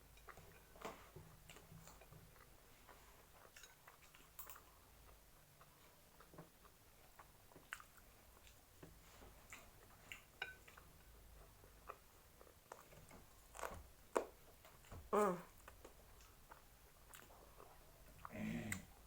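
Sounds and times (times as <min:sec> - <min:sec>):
chewing with lip smacks: 0:00.1 - 0:08.7, 0:15.6 - 0:19.0
person humming mm: 0:15.1 - 0:15.5, 0:18.3 - 0:18.9.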